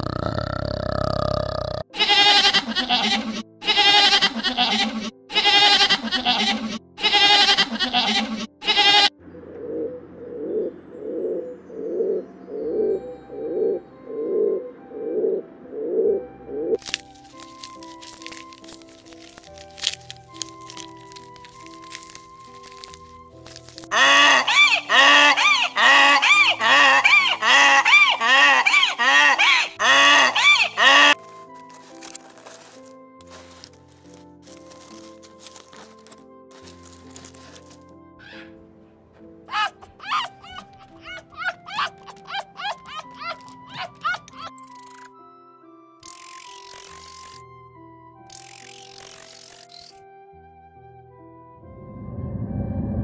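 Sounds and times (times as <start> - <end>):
donkey braying: 2.0 - 9.1, 17.3 - 31.2, 38.2 - 38.6, 39.4 - 44.6
goats bleating: 2.0 - 9.1
pigeon cooing: 9.3 - 16.8, 39.5 - 44.6.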